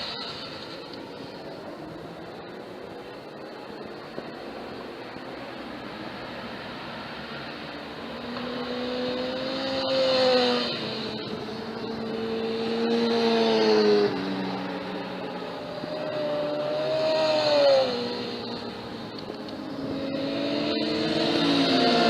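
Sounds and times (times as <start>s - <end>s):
motorcycles accelerating past: 7.8s - 22.0s.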